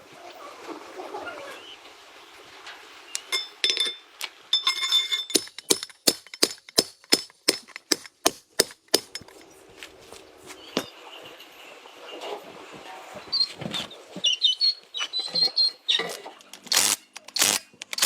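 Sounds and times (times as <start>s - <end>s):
hammer striking metal: 4.6s - 9.3s.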